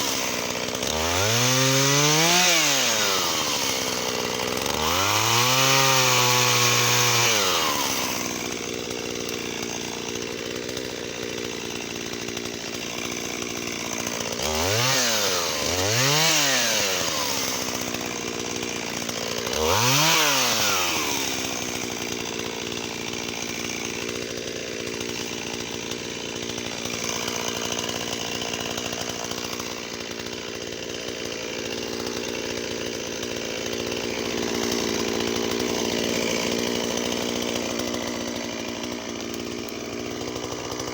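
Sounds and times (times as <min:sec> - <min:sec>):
chainsaw revving and idling: 0:00.0 - 0:40.9.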